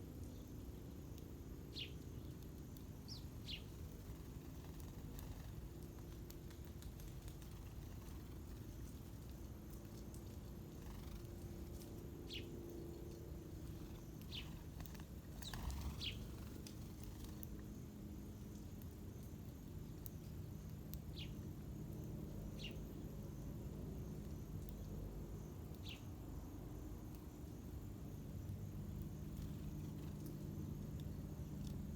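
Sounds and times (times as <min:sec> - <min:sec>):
low background rumble: 0:00.3 - 0:31.9
birds chirping: 0:03.0 - 0:17.6.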